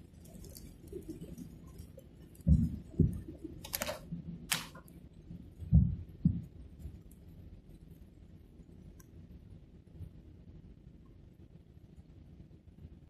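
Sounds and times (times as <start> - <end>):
faint low hum: 0.0 - 13.0
low thumps: 5.6 - 6.6.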